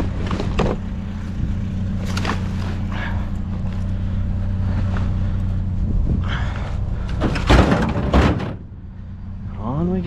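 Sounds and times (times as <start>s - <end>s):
vehicle engine idling: 0.0s - 10.0s
faint rustles: 0.2s - 7.8s.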